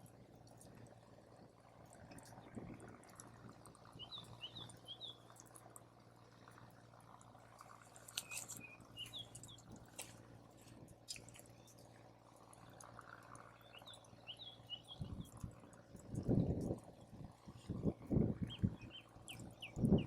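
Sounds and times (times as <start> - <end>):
small bird chirping: 4.0 - 5.4, 7.9 - 10.1, 13.5 - 16.8, 17.6 - 20.0.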